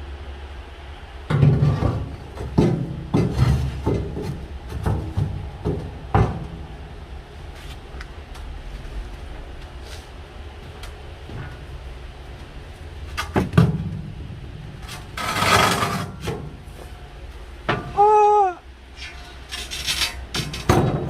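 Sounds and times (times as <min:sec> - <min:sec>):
steady low hum: 0:00.0 - 0:21.0
heavy stones knocking and scraping: 0:01.3 - 0:06.6.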